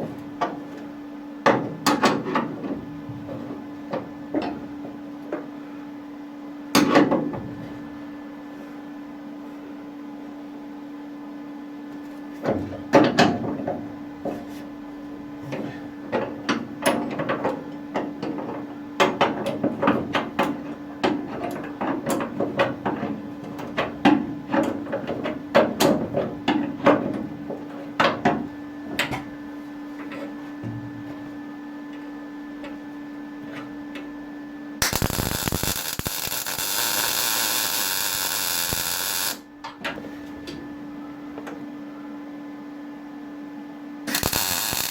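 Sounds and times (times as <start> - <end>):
welder steady hum: 31.9 - 40.6, 44.0 - 44.9
loud even hiss: 34.8 - 39.4, 44.1 - 44.9
welder sputtering crackle: 34.8 - 39.5, 44.1 - 44.9.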